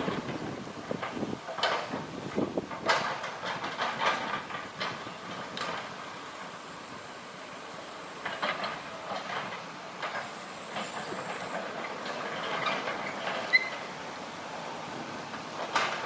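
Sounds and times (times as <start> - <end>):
excavator metallic clanks: 0.0 - 6.6, 7.5 - 16.0
high squeak: 13.0 - 13.9.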